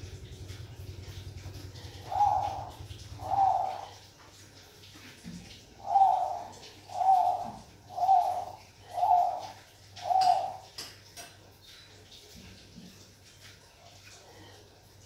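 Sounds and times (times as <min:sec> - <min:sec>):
dove cooing: 0:01.0 - 0:04.4, 0:05.1 - 0:10.9.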